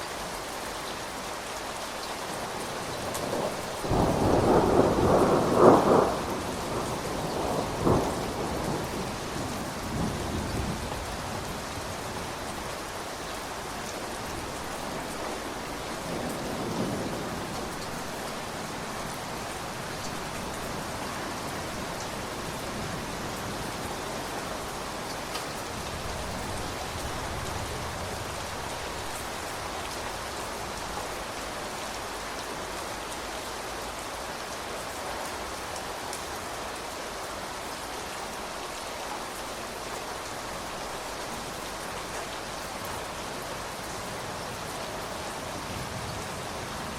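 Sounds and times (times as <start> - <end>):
steady rain: 0.0 - 46.9
rumble of thunder: 3.1 - 12.5.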